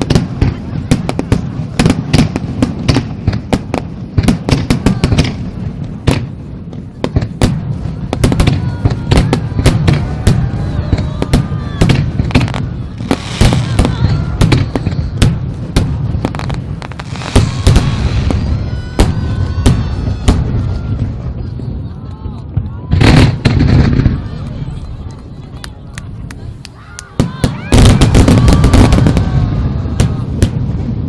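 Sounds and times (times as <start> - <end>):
fireworks crackling fizz: 0.0 - 22.0, 22.9 - 31.0
fireworks bangs: 0.0 - 31.0
crowd excited voices: 4.5 - 6.8, 7.6 - 15.2, 17.0 - 30.9.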